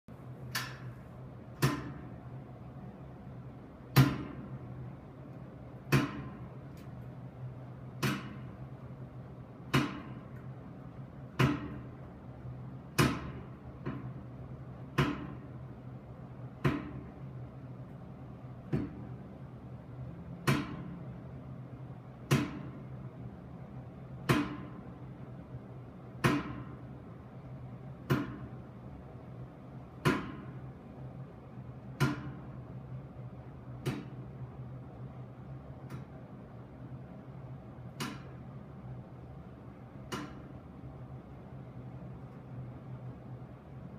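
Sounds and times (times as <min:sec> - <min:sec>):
heater knocking: 0:00.4 - 0:02.4, 0:03.4 - 0:17.6, 0:22.0 - 0:23.3, 0:26.1 - 0:33.0, 0:33.6 - 0:43.5.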